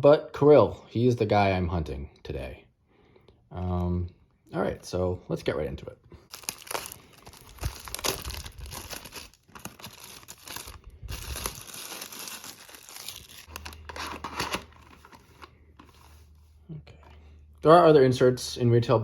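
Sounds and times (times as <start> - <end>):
packaging crinkling and tearing: 6.3 - 16.1.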